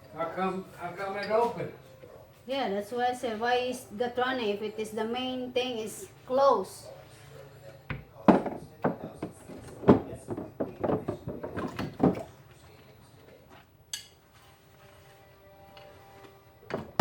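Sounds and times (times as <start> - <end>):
dishes and utensils clattering: 7.9 - 12.6.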